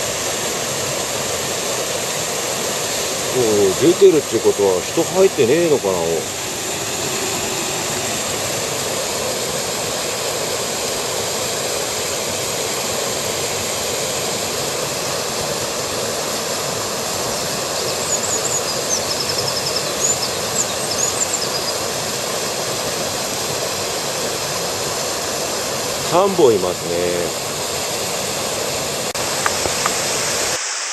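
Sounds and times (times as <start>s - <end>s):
stream water rushing: 0.0s - 30.9s
small bird chirping and trilling: 17.7s - 21.8s.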